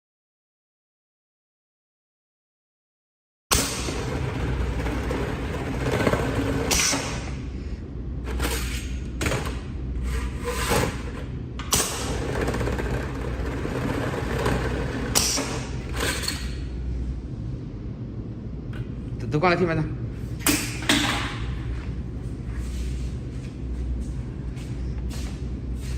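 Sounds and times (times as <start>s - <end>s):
machine motor hum: 3.5s - 19.2s.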